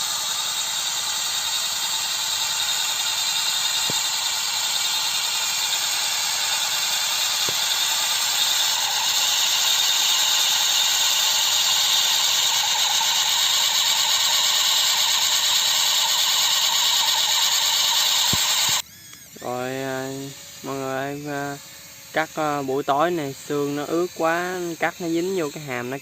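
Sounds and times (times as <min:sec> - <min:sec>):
combine harvester engine: 0:00.0 - 0:18.8
combine harvester mechanical whine: 0:00.0 - 0:26.0.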